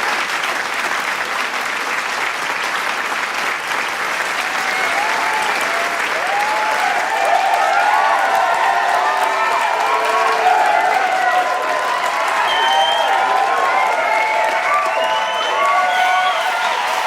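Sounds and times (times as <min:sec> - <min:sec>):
crowd applauding: 0:00.0 - 0:17.0
crowd cheering and shouting: 0:04.2 - 0:17.0.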